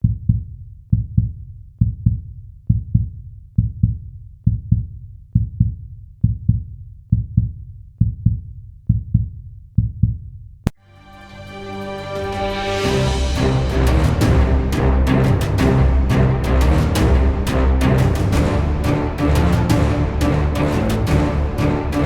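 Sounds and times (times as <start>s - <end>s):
heartbeat thumps: 0.0s - 10.3s.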